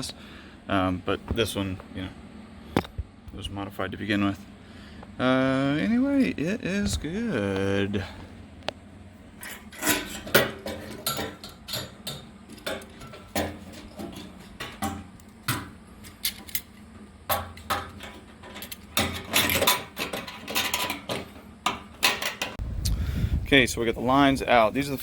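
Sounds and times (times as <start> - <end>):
metal parts and tools clinking: 9.4 - 22.6.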